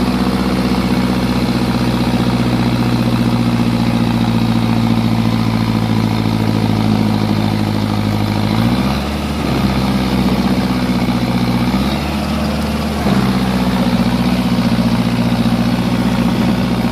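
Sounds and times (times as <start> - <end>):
tractor engine running: 0.0 - 16.9.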